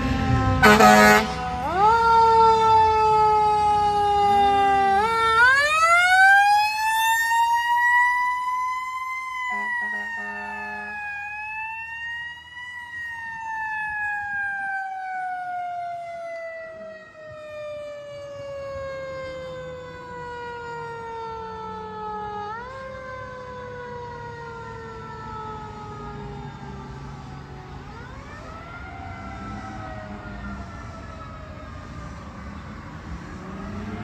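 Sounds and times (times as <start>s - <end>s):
truck engine rumble: 0.0s - 11.8s, 17.4s - 34.0s.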